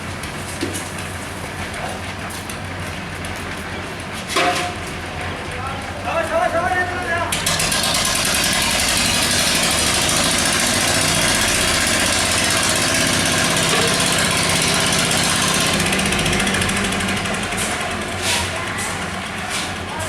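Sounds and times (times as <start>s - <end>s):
small engine rattling: 7.0s - 20.0s.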